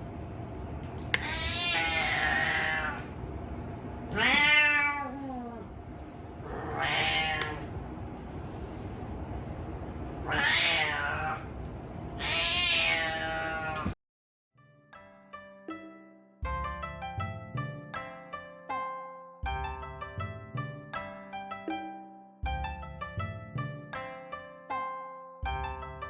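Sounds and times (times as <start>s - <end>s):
cat meowing: 1.1s - 3.1s, 4.1s - 5.7s, 6.4s - 7.7s, 10.2s - 11.5s, 12.2s - 14.0s.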